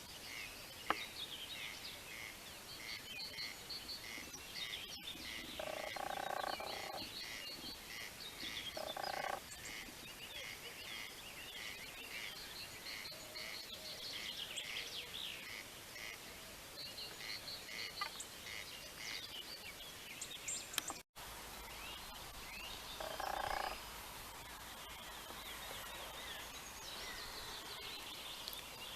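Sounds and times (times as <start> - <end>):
birds chirping: 2.5 - 15.5, 21.7 - 28.9
frogs croaking: 5.3 - 7.4, 8.7 - 9.9, 23.0 - 23.8.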